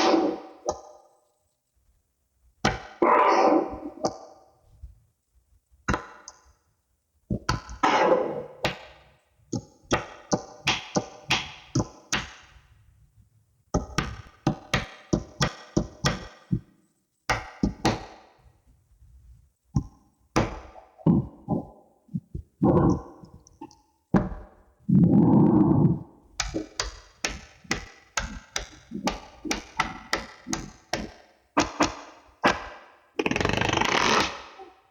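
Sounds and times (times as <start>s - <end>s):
magnetic balls clicking together: 26.4s - 34.6s.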